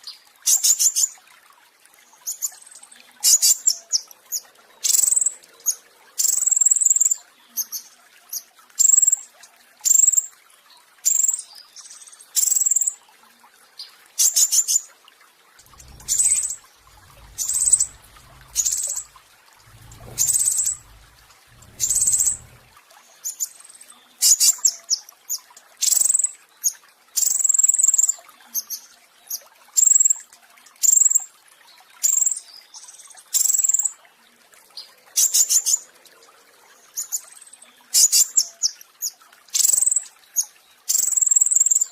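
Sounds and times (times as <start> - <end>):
bird rattling trills: 15.7 - 22.8.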